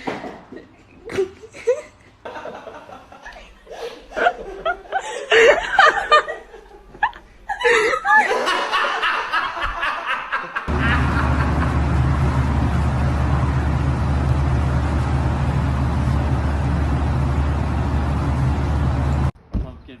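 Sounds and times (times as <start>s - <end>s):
person laughing: 1.1s - 11.9s
steady low rumble with hiss: 10.7s - 19.4s.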